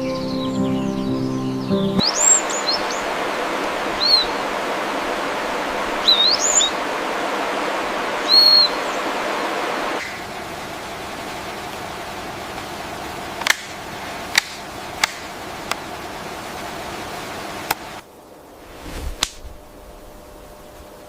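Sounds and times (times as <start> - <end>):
hissing outdoor ambience: 0.0 - 21.0
sharp clicks: 13.4 - 15.8.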